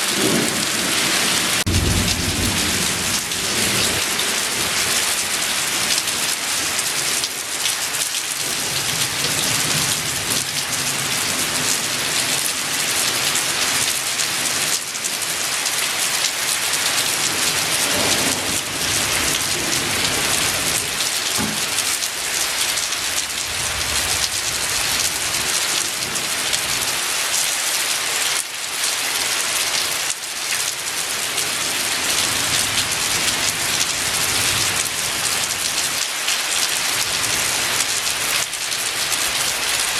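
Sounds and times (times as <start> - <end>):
thunder rumbling: 0.0 - 6.3, 17.2 - 26.3
heavy rain pouring: 0.0 - 39.9.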